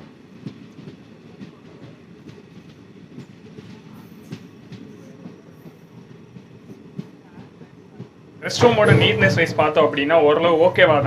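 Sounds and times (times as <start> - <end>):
train rumbling: 0.0 - 11.0
wheels clanking and knocking: 8.5 - 10.9.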